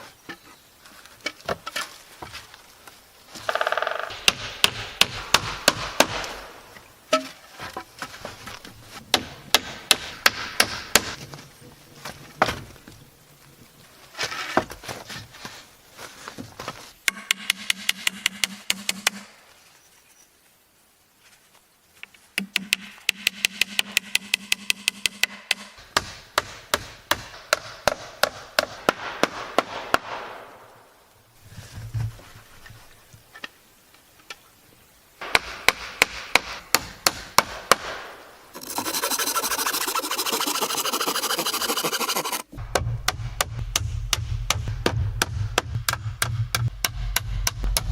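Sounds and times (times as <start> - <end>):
tool rapid clicking: 38.6 - 42.5.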